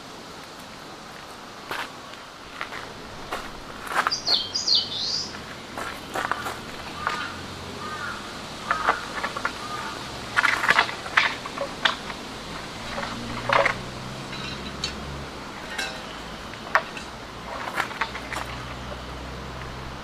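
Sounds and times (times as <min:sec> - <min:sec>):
camp gear clinking and knocking: 0:10.3 - 0:19.8.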